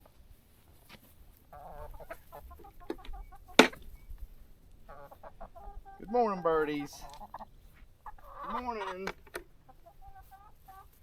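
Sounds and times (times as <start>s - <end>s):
chickens clucking: 0.0s - 11.0s
sharp knock: 3.6s - 3.8s.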